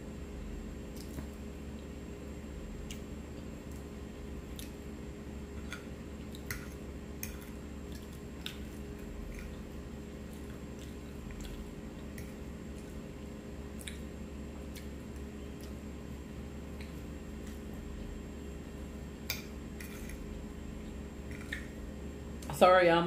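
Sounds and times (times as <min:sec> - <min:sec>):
steady low hum: 0:00.0 - 0:23.0
person chewing and eating: 0:02.8 - 0:04.8, 0:05.5 - 0:21.8.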